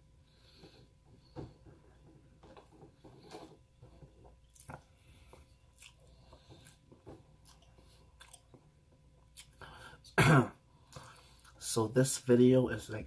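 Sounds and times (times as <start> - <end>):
person chewing food: 2.5 - 10.1.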